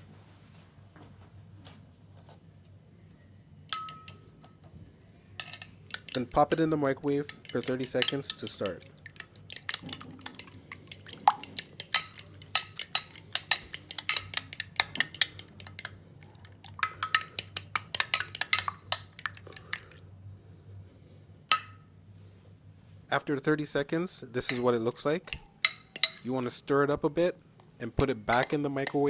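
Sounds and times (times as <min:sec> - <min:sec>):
faint low hum: 0:00.0 - 0:29.0
metal utensil clinking on dish: 0:03.7 - 0:04.2, 0:05.4 - 0:06.6, 0:07.2 - 0:19.9, 0:25.3 - 0:26.3, 0:28.2 - 0:29.0.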